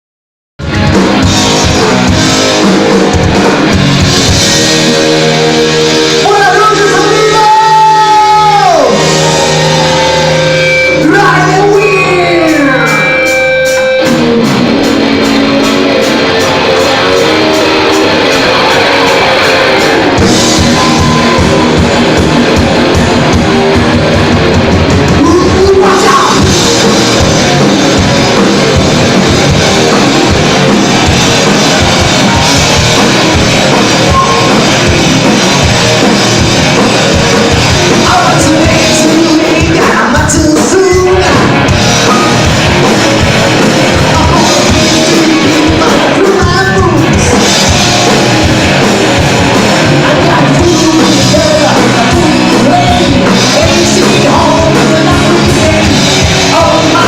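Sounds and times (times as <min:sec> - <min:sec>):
electric guitar bending notes: 0:00.6 - 0:57.0
live rock band playing: 0:00.6 - 0:57.0
person singing: 0:25.1 - 0:28.2, 0:37.9 - 0:42.3, 0:43.9 - 0:47.4, 0:49.9 - 0:57.0.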